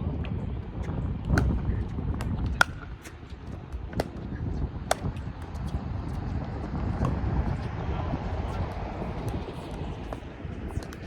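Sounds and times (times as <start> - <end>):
wind rumble on microphone: 0.0 - 11.0
paddles hitting ball: 1.2 - 6.4, 8.7 - 11.0.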